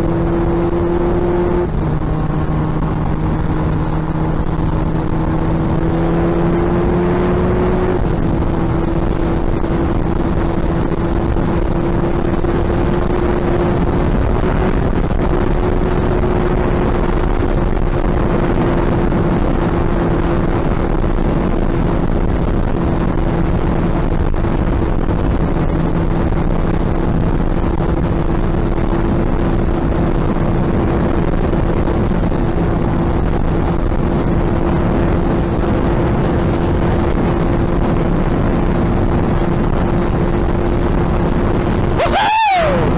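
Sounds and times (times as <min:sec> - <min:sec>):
wind rushing over microphone: 0:37.0 - 0:42.9.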